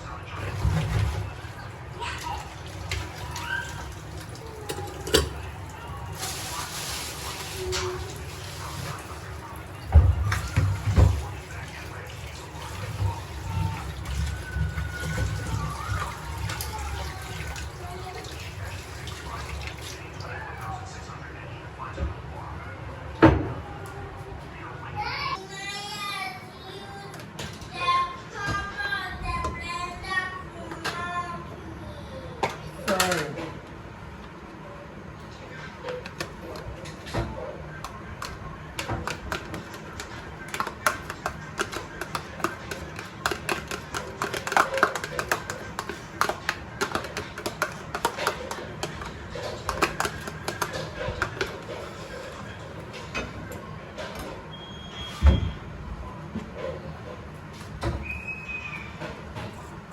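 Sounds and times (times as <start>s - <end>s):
running water: 0.2s - 20.7s.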